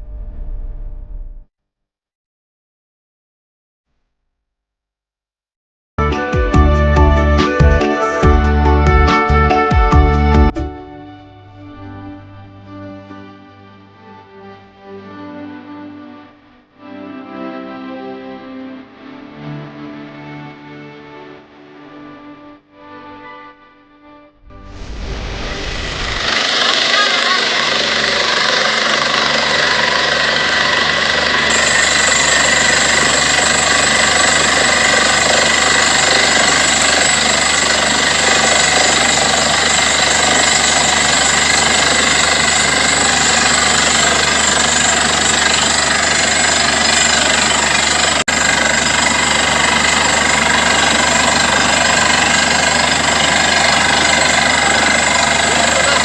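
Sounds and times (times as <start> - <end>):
engine and compressor running: 25.8 - 56.0
air hammer drilling: 26.0 - 56.0.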